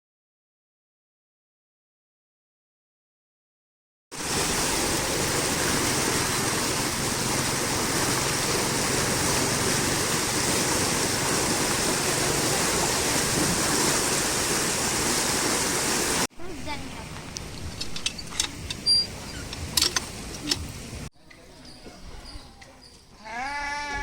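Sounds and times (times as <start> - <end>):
water rushing: 4.1 - 21.1.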